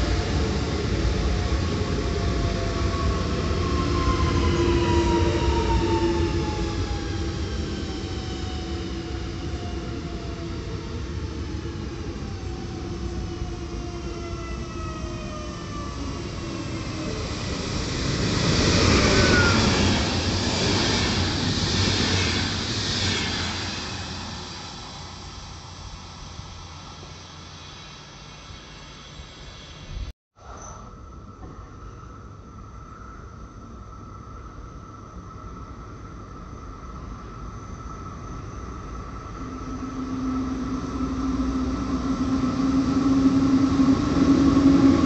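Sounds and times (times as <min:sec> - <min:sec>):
low train rumble: 0:00.0 - 0:45.0
rush of rail noise: 0:00.0 - 0:45.0.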